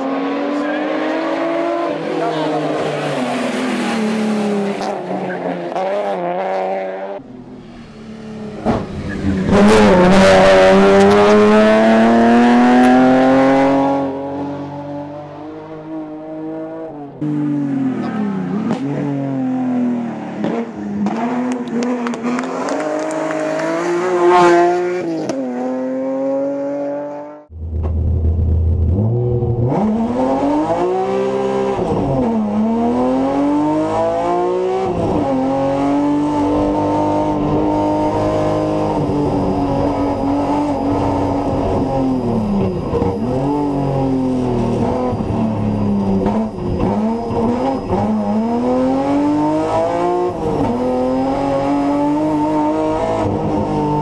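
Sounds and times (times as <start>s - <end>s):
race car engine revving: 0.0s - 54.0s
heavy low rumble: 27.5s - 29.6s.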